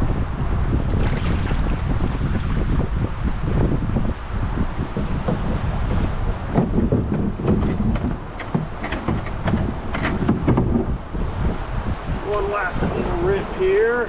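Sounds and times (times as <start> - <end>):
wind buffeting microphone: 0.0 - 14.0
water splashes: 0.7 - 3.4, 5.1 - 14.0
rushing river water: 4.9 - 14.0.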